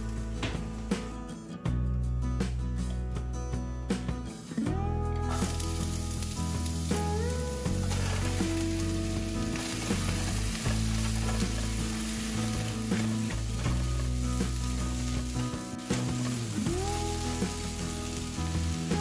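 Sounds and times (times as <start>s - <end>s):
onion sizzling in hot oil: 5.2s - 19.0s.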